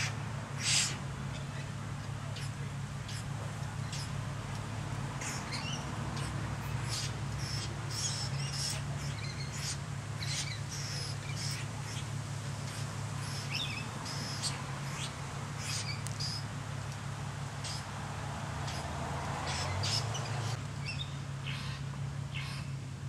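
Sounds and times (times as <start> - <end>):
birds chirping: 0.0 - 22.9.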